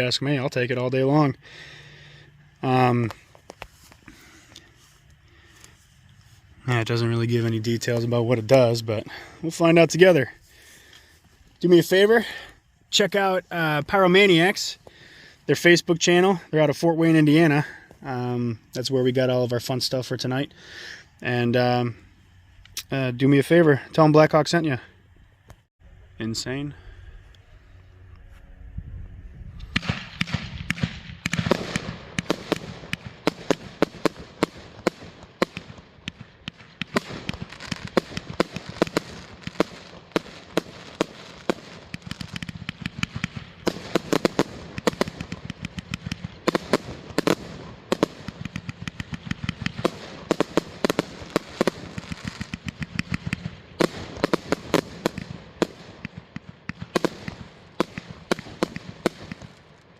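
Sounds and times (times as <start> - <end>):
firework bangs and crackling: 29.6 - 59.9.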